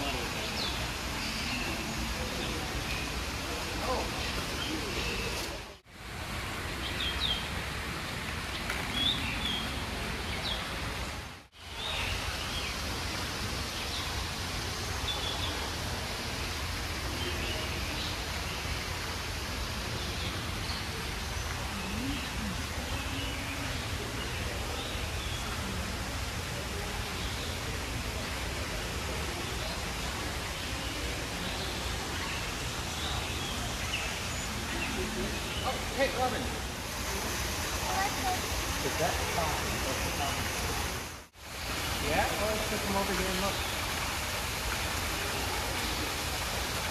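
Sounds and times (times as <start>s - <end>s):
background hiss: 0.0s - 46.9s.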